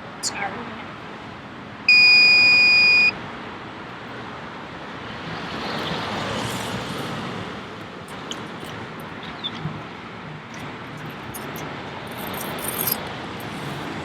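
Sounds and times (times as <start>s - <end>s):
traffic noise: 0.0s - 14.0s
high electronic beep: 1.9s - 3.1s
vehicle passing: 5.0s - 14.0s.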